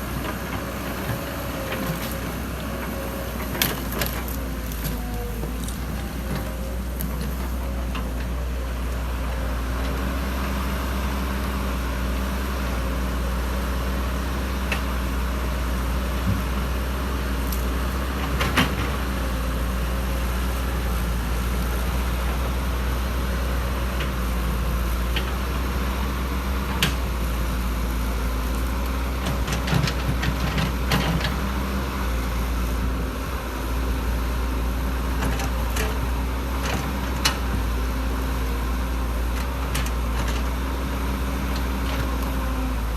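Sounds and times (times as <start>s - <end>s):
excavator diesel engine: 0.0s - 42.9s
digging knocks and clanks: 0.2s - 8.4s.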